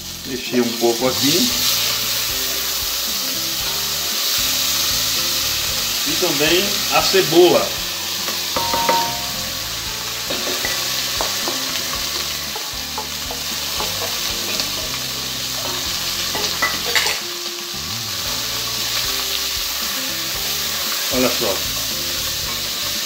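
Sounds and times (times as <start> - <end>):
food sizzling in oil: 0.0 - 23.0
knocks and clinks on steel bowl: 8.6 - 9.3, 15.6 - 17.2
metallic ring: 8.6 - 9.4.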